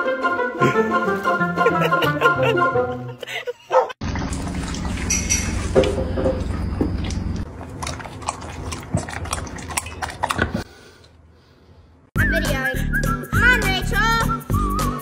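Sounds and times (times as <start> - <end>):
dog lapping water from bowl: 4.0 - 10.7.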